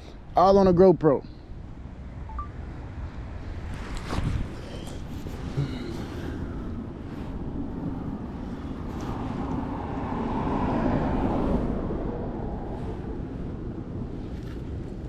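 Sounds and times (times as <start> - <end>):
passing vehicle rumble: 3.1 - 15.0.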